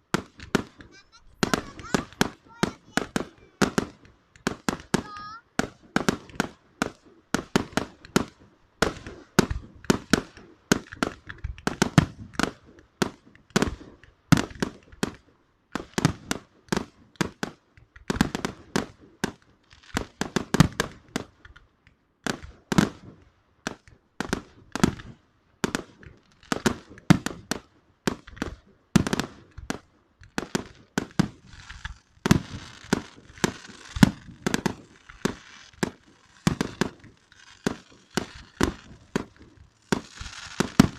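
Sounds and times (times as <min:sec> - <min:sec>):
fireworks bangs: 0:00.0 - 0:21.6, 0:22.2 - 0:40.9
fireworks hiss: 0:00.5 - 0:06.4, 0:28.5 - 0:40.9.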